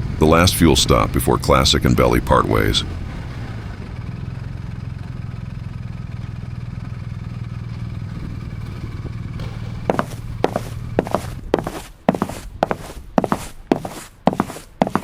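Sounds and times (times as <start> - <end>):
motorcycle engine idling: 0.0 - 14.9
sharp knocks: 8.1 - 15.0.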